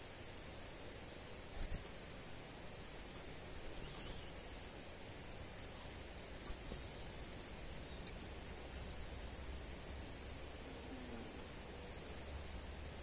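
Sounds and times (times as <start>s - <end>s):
faint outdoor background hiss: 0.0s - 13.0s
small bird chirping: 3.0s - 13.0s.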